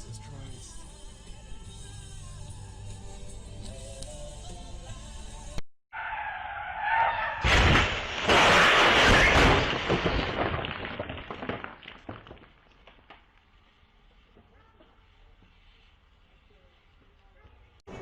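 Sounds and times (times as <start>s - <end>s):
music: 0.0s - 5.6s
car crash: 6.0s - 12.6s
debris clattering: 7.4s - 13.2s.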